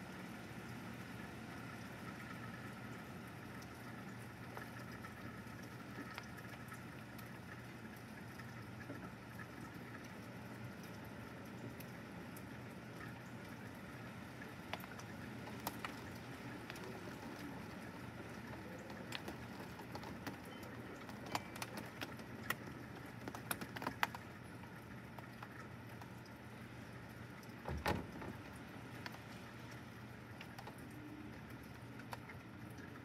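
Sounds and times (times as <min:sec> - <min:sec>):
rain and wind hiss: 0:00.0 - 0:07.9, 0:09.8 - 0:24.2
raindrops tapping on glass: 0:01.9 - 0:33.0.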